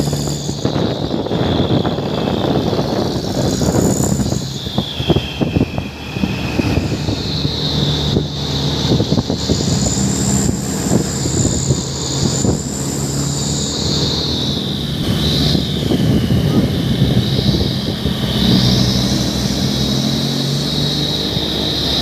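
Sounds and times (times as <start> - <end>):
high whine: 0.0 - 22.0
truck engine droning with crackling pops: 0.0 - 22.0.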